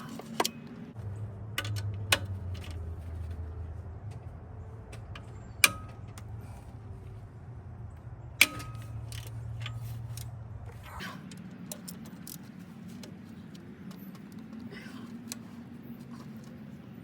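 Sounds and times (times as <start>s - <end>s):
metal tools clinking: 8.4s - 10.3s.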